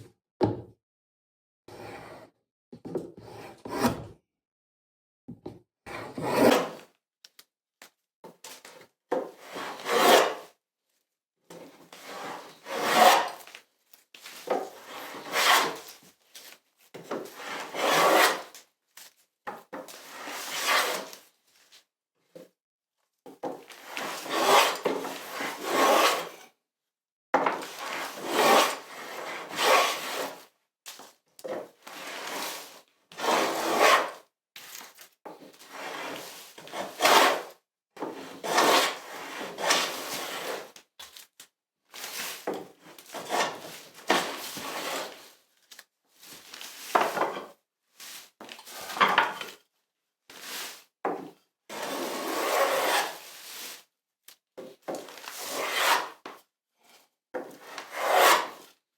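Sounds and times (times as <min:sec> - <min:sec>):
hand tool scraping wood: 0:05.9 - 0:06.8, 0:09.2 - 0:10.4, 0:11.9 - 0:13.5, 0:14.3 - 0:16.0, 0:17.0 - 0:18.6, 0:19.8 - 0:21.2, 0:23.8 - 0:26.3, 0:27.4 - 0:30.4, 0:33.2 - 0:34.2, 0:35.7 - 0:37.5, 0:38.1 - 0:40.7, 0:42.0 - 0:45.3, 0:51.7 - 0:53.7, 0:54.9 - 0:56.3, 0:57.4 - 0:58.7.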